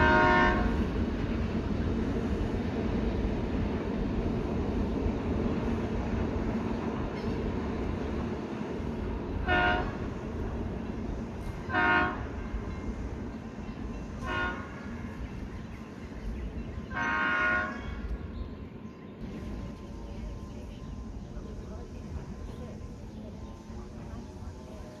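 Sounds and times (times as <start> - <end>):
train horn blasts: 0.0 - 0.9, 9.4 - 10.1, 11.6 - 12.4, 14.2 - 15.0, 16.9 - 18.0
train rumbling: 0.0 - 25.0.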